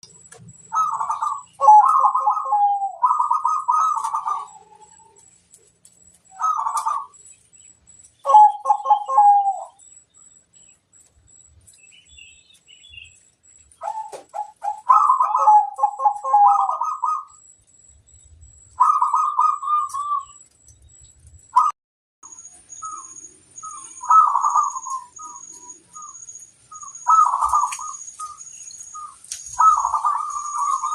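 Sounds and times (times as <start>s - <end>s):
dove cooing in pulsed notes: 0.5s - 5.5s, 6.1s - 7.3s, 8.2s - 10.0s, 13.8s - 20.4s, 22.7s - 30.9s.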